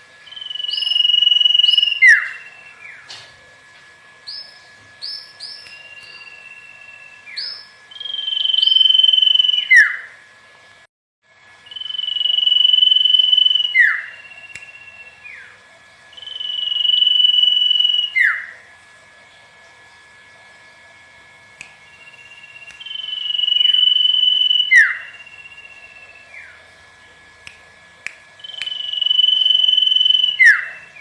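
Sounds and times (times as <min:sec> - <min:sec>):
thin high tone: 0:00.2 - 0:02.9, 0:04.3 - 0:10.0, 0:11.6 - 0:15.2, 0:16.1 - 0:18.4, 0:21.8 - 0:26.6, 0:28.4 - 0:31.0
bird whistling: 0:00.2 - 0:03.1, 0:04.3 - 0:10.1, 0:11.6 - 0:15.5, 0:16.1 - 0:18.5, 0:21.8 - 0:26.6, 0:28.4 - 0:31.0.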